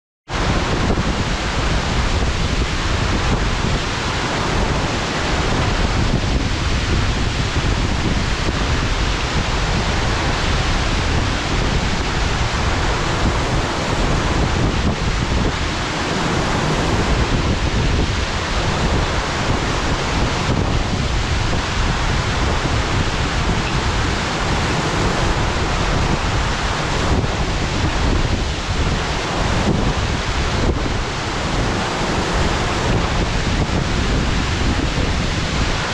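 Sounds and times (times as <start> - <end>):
waterfall rushing: 0.3 - 35.9
wind: 0.3 - 35.9.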